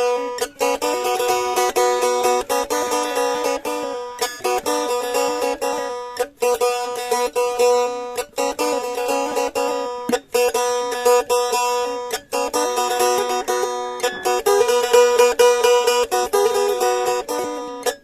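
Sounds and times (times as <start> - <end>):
plucked boat lute melody: 0.0 - 18.0.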